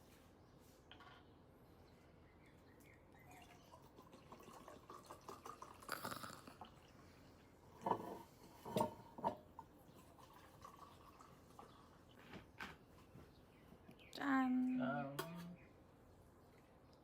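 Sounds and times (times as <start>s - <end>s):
liquid pouring into a glass: 3.2s - 7.1s, 9.9s - 12.1s.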